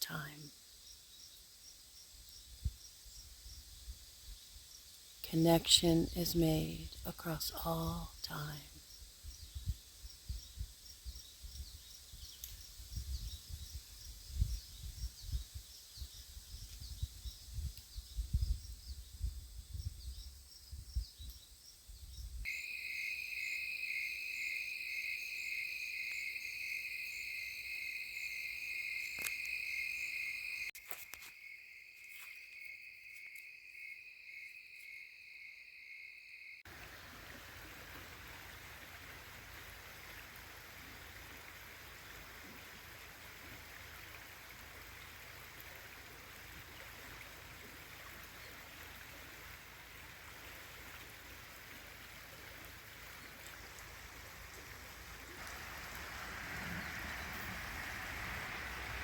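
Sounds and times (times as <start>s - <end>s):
insects chirping: 8.8s - 37.2s, 53.9s - 59.0s
wind noise on microphone: 9.0s - 22.5s.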